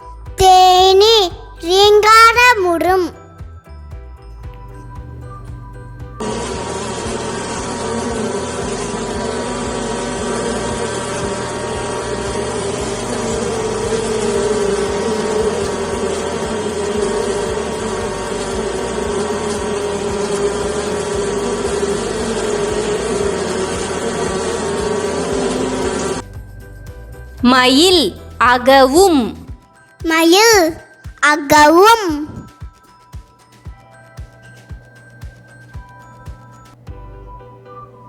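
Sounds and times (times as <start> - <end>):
bees buzzing: 5.0 - 26.2.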